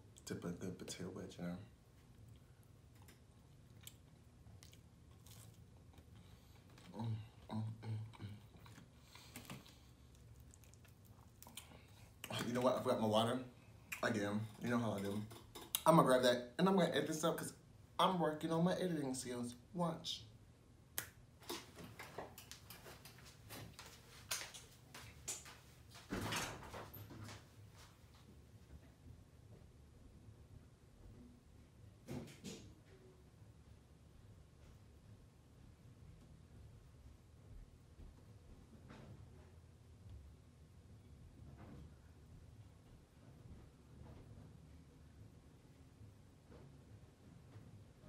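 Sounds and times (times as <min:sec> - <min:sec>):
chewing with small crunches: 0:01.7 - 0:12.8
person humming mm: 0:06.9 - 0:08.5.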